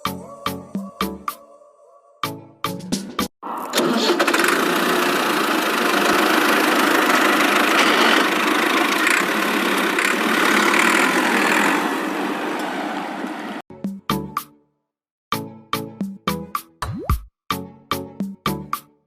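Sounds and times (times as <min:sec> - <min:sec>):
small motor whirring: 0:04.0 - 0:12.0.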